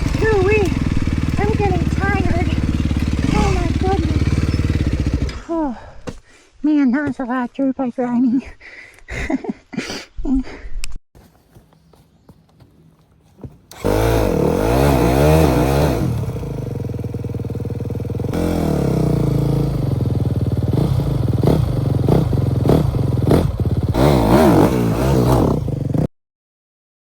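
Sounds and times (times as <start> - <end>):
dirt bike engine revving: 0.0 - 5.5, 13.7 - 26.1.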